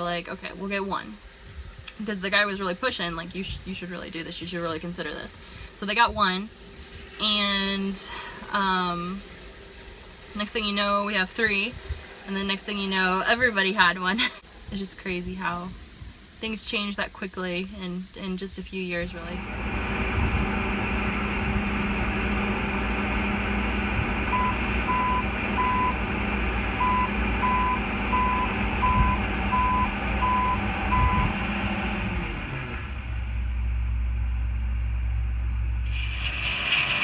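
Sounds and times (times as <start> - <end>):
truck engine running: 19.1 - 37.0
reversing alarm beeping: 24.2 - 31.5.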